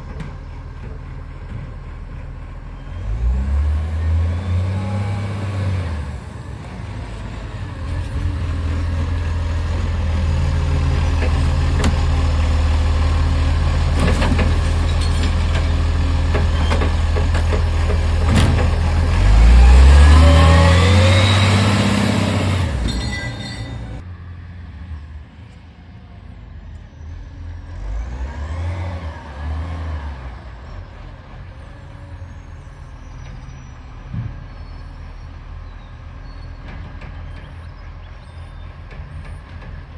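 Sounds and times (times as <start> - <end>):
garbage truck diesel engine revving: 0.1 - 24.0.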